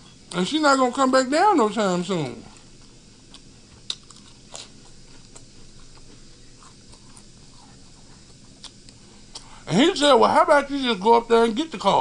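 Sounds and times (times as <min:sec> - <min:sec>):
chewing food: 0:02.5 - 0:09.5.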